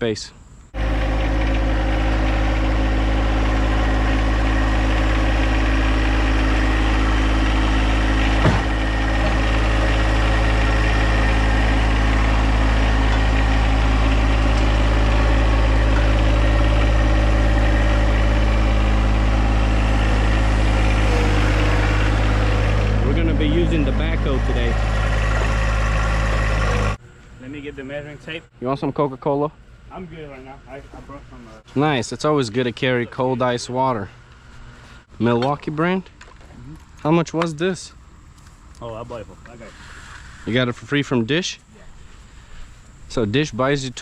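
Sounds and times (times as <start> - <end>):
tractor diesel engine running: 0.8 - 27.0.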